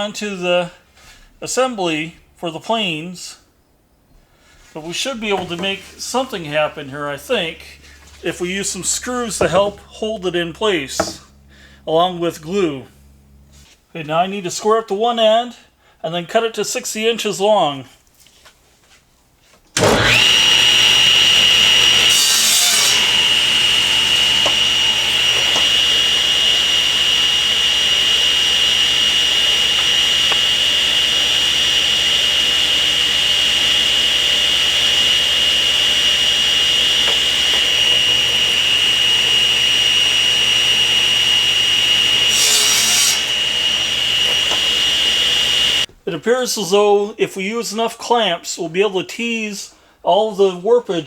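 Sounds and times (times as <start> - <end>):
table saw whine: 4.6 - 13.7, 19.8 - 45.9
saw blade cutting a board: 8.2 - 9.9, 19.8 - 45.9.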